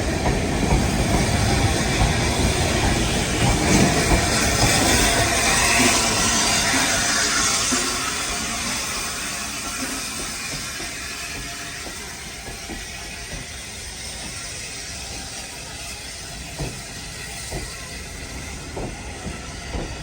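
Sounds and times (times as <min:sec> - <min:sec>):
sharp knocks of train wheels: 0:00.0 - 0:20.0
train rushing on track: 0:00.0 - 0:20.0.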